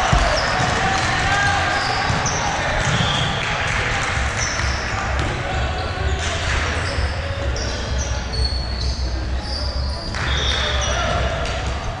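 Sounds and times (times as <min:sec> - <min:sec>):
volleyball hits: 0:00.0 - 0:05.4
faint voices: 0:00.0 - 0:12.0
shoes squeaking on court: 0:01.7 - 0:03.2, 0:05.8 - 0:11.4.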